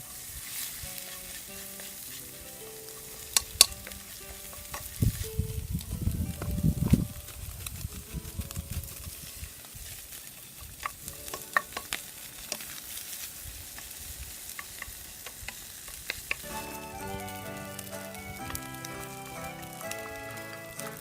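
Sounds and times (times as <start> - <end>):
rice sizzling in a pan: 0.0 - 21.0
utensil scraping and clinking pan: 0.5 - 5.0.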